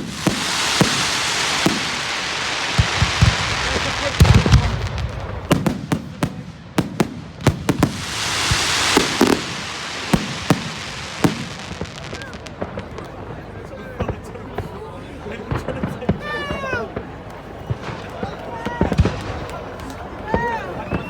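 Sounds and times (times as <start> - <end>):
fireworks crackling hiss: 0.0 - 14.7
fireworks bangs and pops: 0.0 - 14.8, 15.4 - 21.0.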